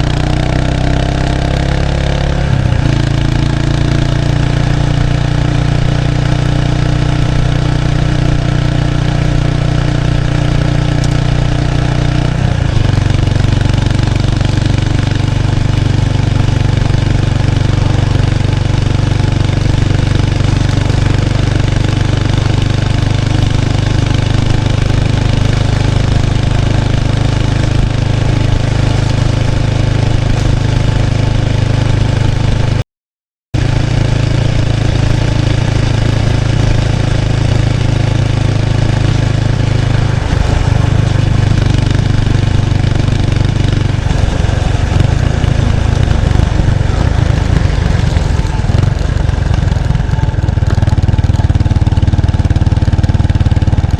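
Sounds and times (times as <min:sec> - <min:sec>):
motorcycle exhaust note: 0:00.0 - 0:32.8, 0:33.6 - 0:53.9.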